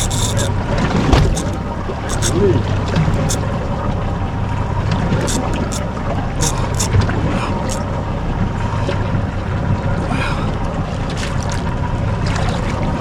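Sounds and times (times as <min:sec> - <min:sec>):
outboard motor idling: 0:00.0 - 0:10.4
light ticks: 0:01.2 - 0:03.6, 0:05.2 - 0:07.0.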